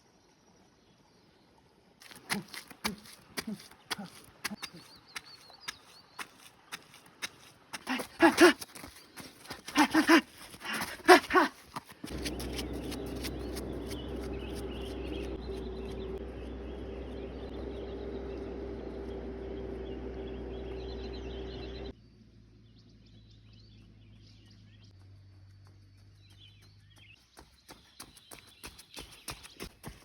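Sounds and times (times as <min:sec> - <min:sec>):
faint birds chirping: 0:00.0 - 0:30.0
low hum with thin tone: 0:12.1 - 0:26.0.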